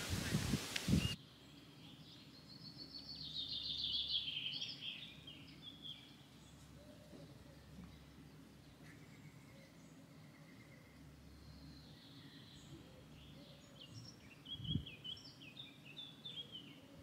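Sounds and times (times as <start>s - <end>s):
loud rush of outdoor noise: 0.0s - 1.3s
quiet rural background: 0.0s - 17.0s
songbird twittering: 0.2s - 17.0s.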